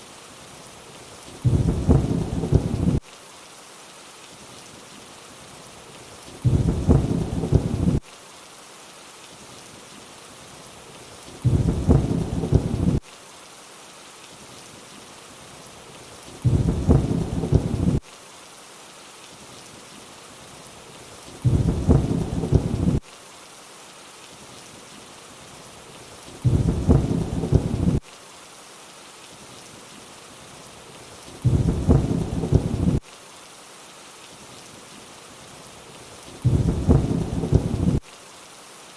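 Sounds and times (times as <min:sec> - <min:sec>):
steady rain hiss: 0:00.0 - 0:38.9
low thunder rumble: 0:01.4 - 0:03.0, 0:06.4 - 0:08.0, 0:11.4 - 0:13.0, 0:16.4 - 0:18.0, 0:21.4 - 0:23.0, 0:26.4 - 0:28.0, 0:31.4 - 0:33.0, 0:36.4 - 0:38.0.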